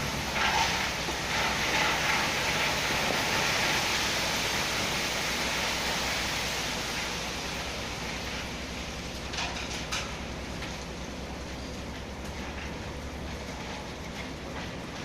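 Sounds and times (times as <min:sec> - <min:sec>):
stone pouring from truck bed: 0:00.0 - 0:10.3
diesel engine running: 0:00.0 - 0:15.0.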